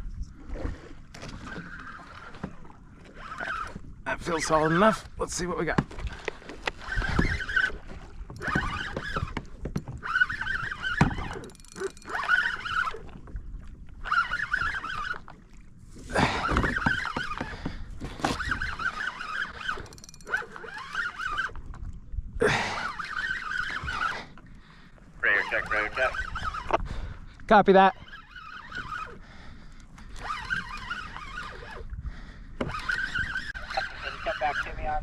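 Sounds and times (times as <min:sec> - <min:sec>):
fishing reel gears whining: 0:03.1 - 0:03.8, 0:06.6 - 0:13.2, 0:14.0 - 0:15.3, 0:16.2 - 0:21.6, 0:22.5 - 0:24.3, 0:25.4 - 0:26.8, 0:27.9 - 0:32.0, 0:32.6 - 0:34.8.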